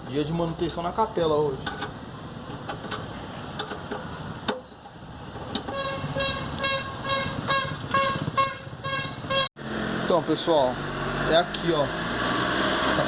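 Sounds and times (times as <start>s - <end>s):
short horn-like beeps: 5.7s - 9.5s.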